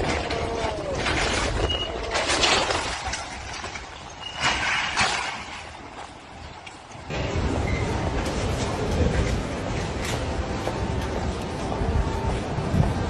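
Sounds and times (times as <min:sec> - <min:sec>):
storm wind gusting: 0:00.0 - 0:13.0.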